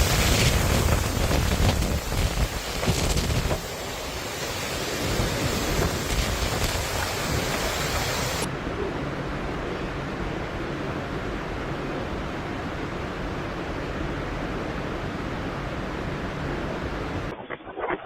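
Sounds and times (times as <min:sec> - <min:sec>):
wind buffeting microphone: 0:00.0 - 0:09.1
steady rushing storm noise: 0:00.0 - 0:18.0.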